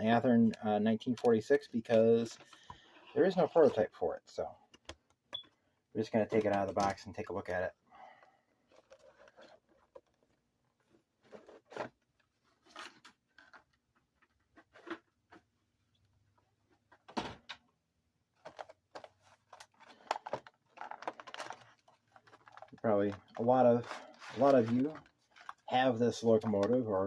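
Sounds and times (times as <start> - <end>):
packaging being handled: 18.4 - 27.0.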